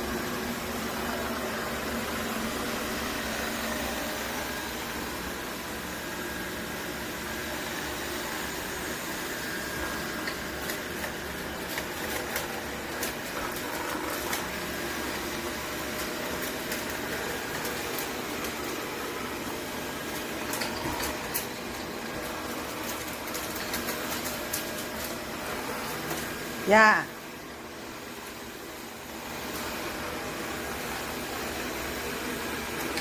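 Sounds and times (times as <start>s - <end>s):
robot vacuum cleaner whirring: 0.0s - 33.0s.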